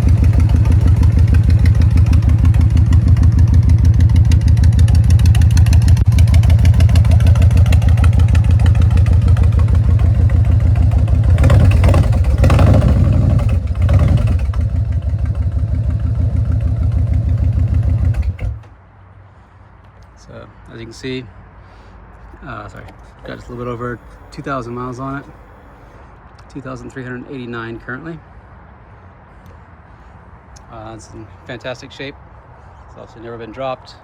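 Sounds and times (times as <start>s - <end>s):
motorcycle engine idling: 0.0s - 18.7s, 22.8s - 26.1s.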